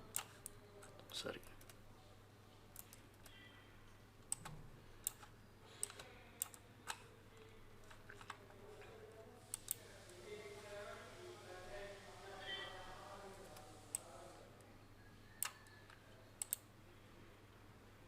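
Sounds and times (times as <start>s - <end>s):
keyboard and mouse clicks: 4.2s - 7.0s, 15.4s - 16.6s.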